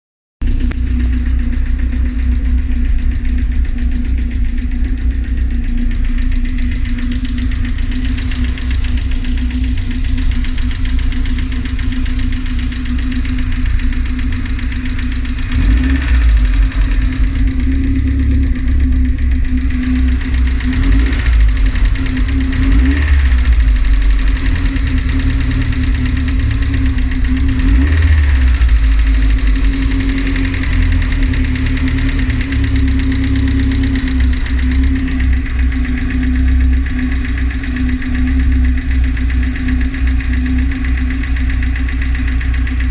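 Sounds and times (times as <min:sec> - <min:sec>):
car engine idling with ticking: 0:00.4 - 0:42.9.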